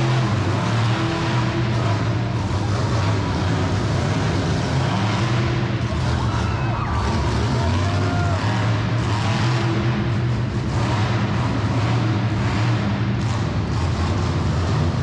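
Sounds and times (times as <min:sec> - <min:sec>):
truck engine deep drone: 0:00.0 - 0:15.0.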